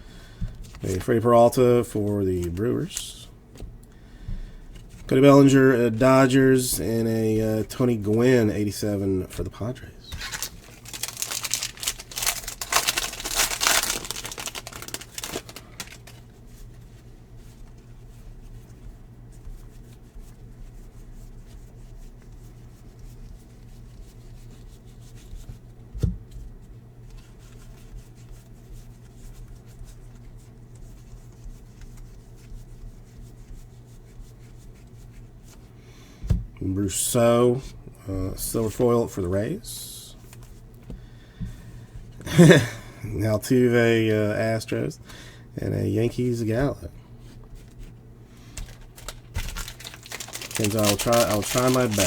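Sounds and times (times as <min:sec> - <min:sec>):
foil wrapper crinkling and tearing: 0:10.1 - 0:16.3, 0:48.4 - 0:52.0.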